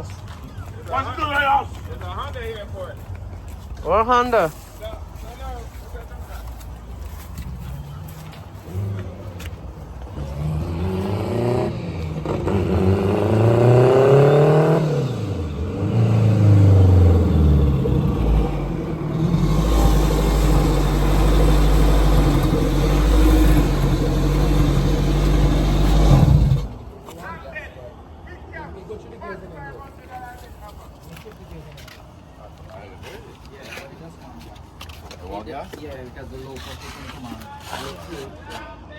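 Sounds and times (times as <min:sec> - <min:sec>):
car engine revving: 0:10.1 - 0:26.9.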